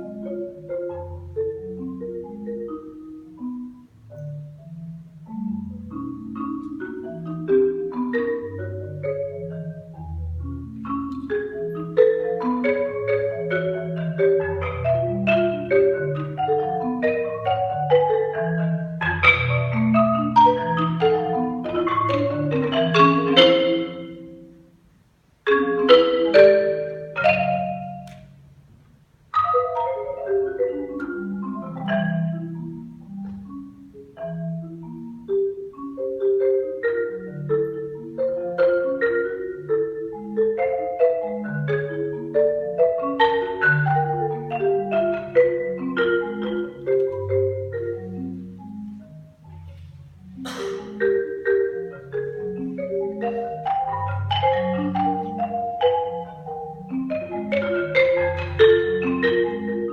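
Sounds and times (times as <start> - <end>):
solo marimba played with mallets: 0.0 - 59.9.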